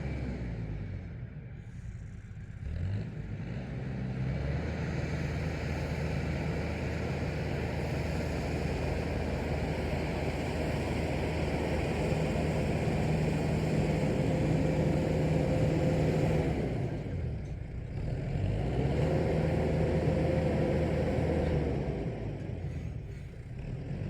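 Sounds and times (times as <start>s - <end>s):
tractor engine running: 4.8s - 24.0s.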